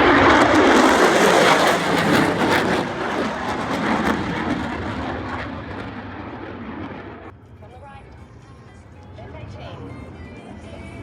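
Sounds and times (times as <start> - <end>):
fighter jets passing by: 0.0 - 7.4.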